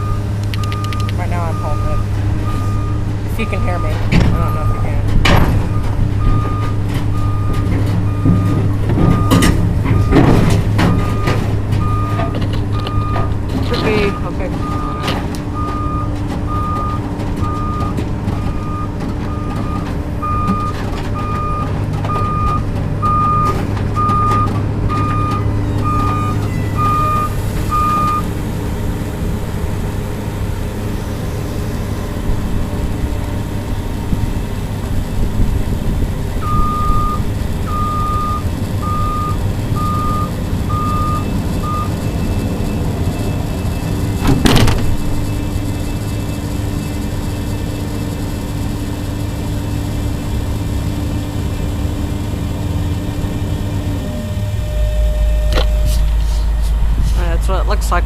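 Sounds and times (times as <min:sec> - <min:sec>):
travel alarm beeping: 0:00.0 - 0:28.3, 0:36.4 - 0:48.0, 0:54.0 - 0:56.9
excavator diesel engine running: 0:00.0 - 0:58.0.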